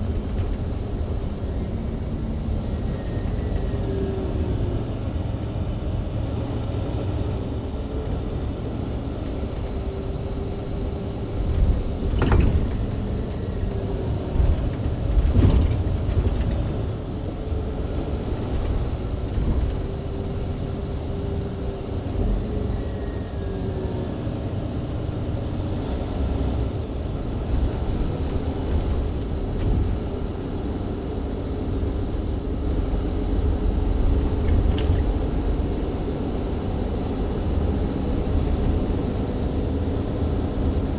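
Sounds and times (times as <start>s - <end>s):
bus engine driving: 0.0s - 40.9s
road rumble: 0.0s - 40.9s.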